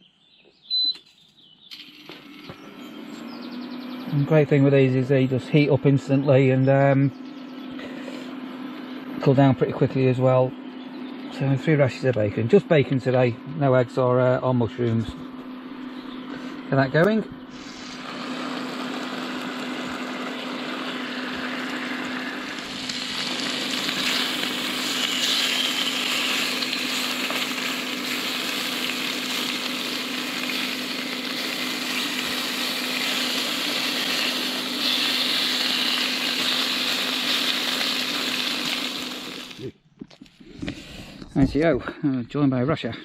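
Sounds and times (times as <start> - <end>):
steady low hum: 1.8 - 43.0
bacon sizzling in a frying pan: 17.5 - 39.6.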